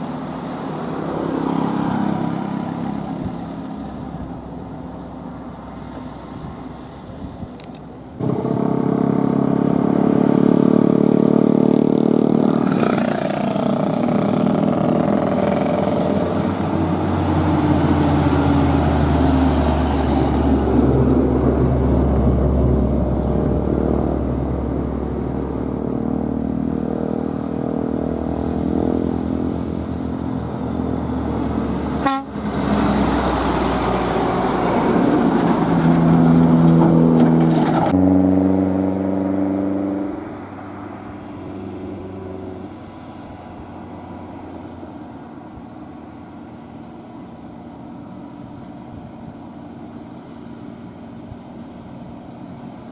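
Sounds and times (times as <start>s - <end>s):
diesel truck engines droning: 0.0s - 52.9s
truck horn: 31.9s - 33.0s.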